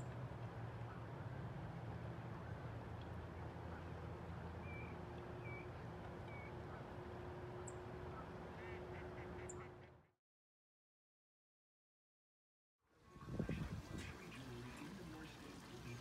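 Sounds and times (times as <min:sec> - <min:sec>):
duck quacking: 0:08.1 - 0:10.1.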